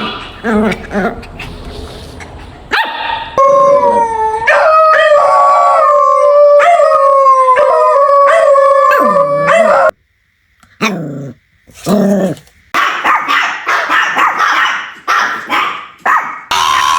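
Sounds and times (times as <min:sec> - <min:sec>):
dog howling: 0:03.3 - 0:10.0
dog sharp cry: 0:12.8 - 0:16.9.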